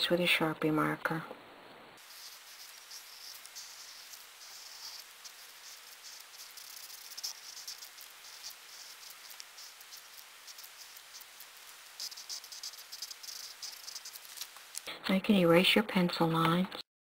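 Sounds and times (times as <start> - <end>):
marker squeaking on paper: 2.0 - 14.9.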